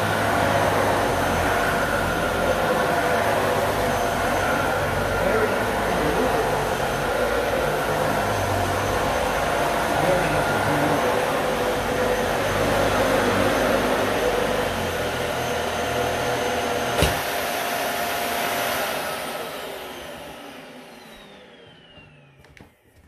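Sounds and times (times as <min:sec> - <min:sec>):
motor winding down whine: 0:00.0 - 0:22.7
upright vacuum running: 0:00.0 - 0:23.0
sharp thump: 0:17.0 - 0:17.2.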